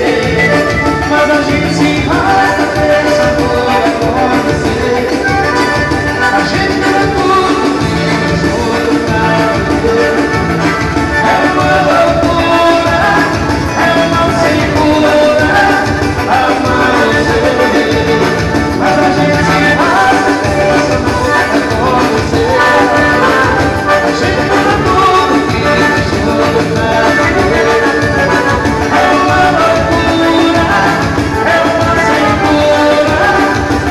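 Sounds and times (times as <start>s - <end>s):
loud dance music: 0.0s - 33.9s
person singing: 0.0s - 33.9s.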